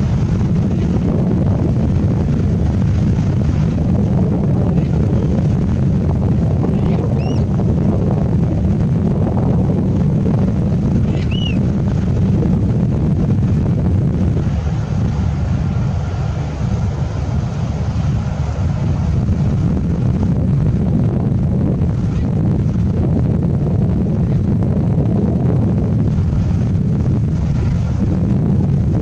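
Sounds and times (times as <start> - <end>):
boat engine running: 0.0 - 29.0
wind buffeting microphone: 0.0 - 29.0
short high chirps: 7.2 - 7.4, 11.1 - 11.6.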